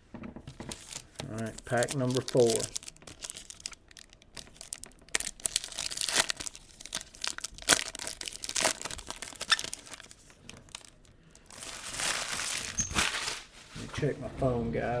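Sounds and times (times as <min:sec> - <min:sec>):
wrapper tearing and crinkling: 0:00.7 - 0:13.6.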